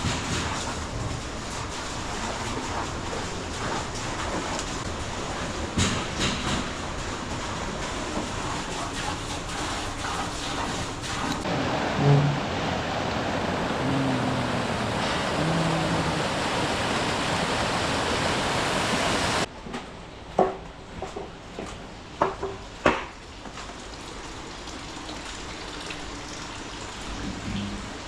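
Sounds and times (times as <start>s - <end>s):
water pouring and splashing: 0.0s - 19.5s, 23.4s - 28.0s
water hiss: 8.8s - 19.5s
water drips and splashes: 23.3s - 28.0s.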